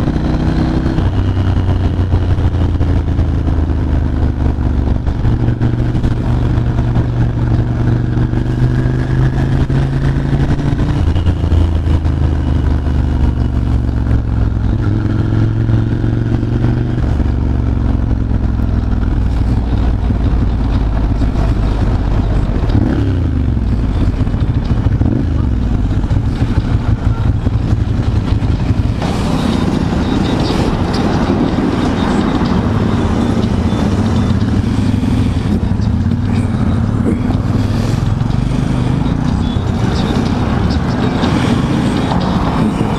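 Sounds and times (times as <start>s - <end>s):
motorcycle engine running: 0.0s - 42.9s
broad rushing noise: 28.6s - 42.9s.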